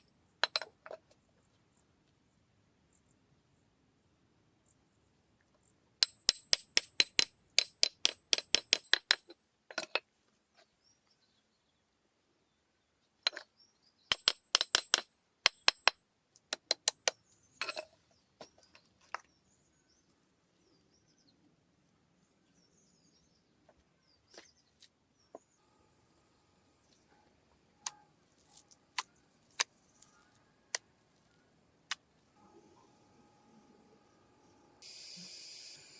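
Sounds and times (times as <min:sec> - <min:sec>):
metallic tapping of hand tool: 0:06.0 - 0:10.0, 0:14.1 - 0:17.9
faint bird chirps: 0:32.4 - 0:35.9.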